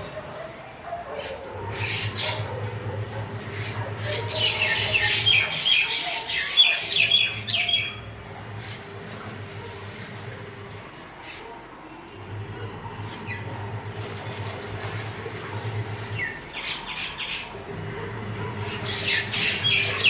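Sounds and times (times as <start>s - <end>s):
bird squawking and chirping: 1.2s - 8.9s, 16.2s - 17.6s, 18.6s - 20.0s.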